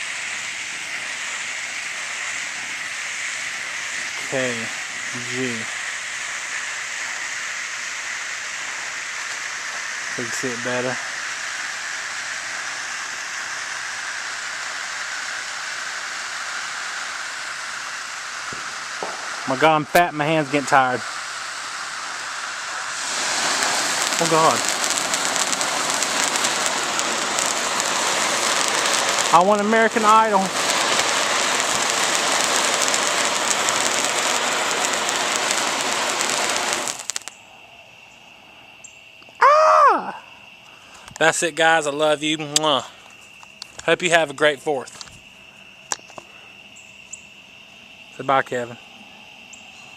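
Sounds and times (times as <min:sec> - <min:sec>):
firework hissing sparks: 0:00.0 - 0:49.9
crackling ticks: 0:23.4 - 0:37.4, 0:42.5 - 0:44.0, 0:44.9 - 0:45.2.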